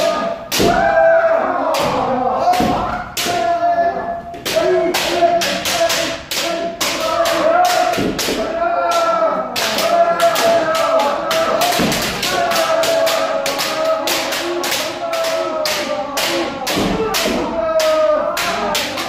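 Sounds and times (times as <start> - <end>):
people shouting: 0.0 - 19.0.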